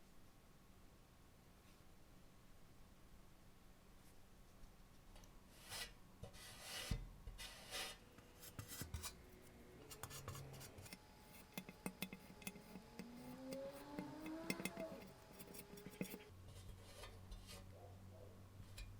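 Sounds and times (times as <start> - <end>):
hand tool scraping strokes: 5.5 - 17.7.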